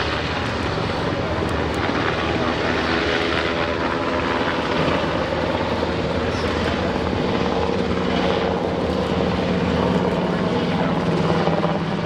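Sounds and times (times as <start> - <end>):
helicopter rotor and engines: 0.0 - 12.0.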